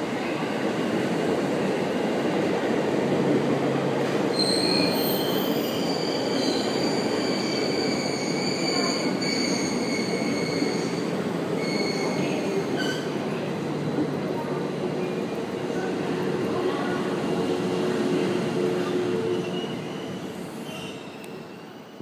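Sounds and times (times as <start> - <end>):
high squealing brakes: 4.3 - 13.2, 19.3 - 22.0.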